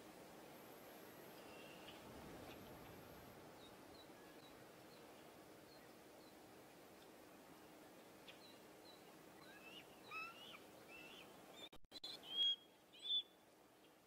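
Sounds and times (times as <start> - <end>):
bird chirps and whistles: 12.0 - 13.3.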